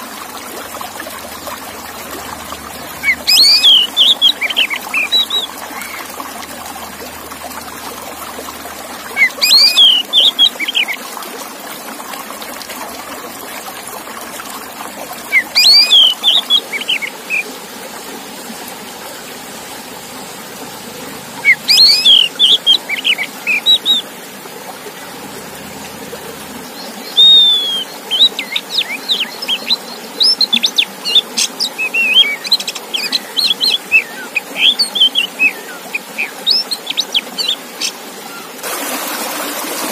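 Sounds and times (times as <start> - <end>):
bird singing whistled notes: 3.0 - 6.0, 9.2 - 10.8, 15.3 - 17.4, 21.4 - 24.0, 27.0 - 30.7.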